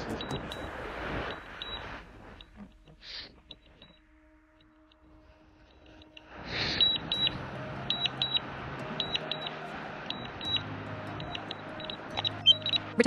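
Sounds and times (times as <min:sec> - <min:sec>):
rush of noise: 0:00.0 - 0:02.6, 0:05.2 - 0:12.7
low hum: 0:00.0 - 0:13.0
high double warning beeps: 0:00.1 - 0:02.6, 0:06.8 - 0:13.0.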